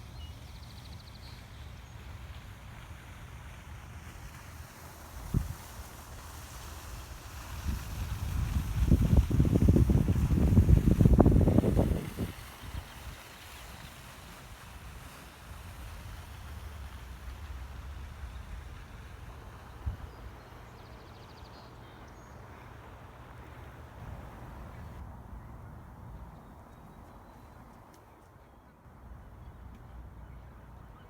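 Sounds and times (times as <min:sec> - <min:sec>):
wind buffeting microphone: 0:07.3 - 0:13.2.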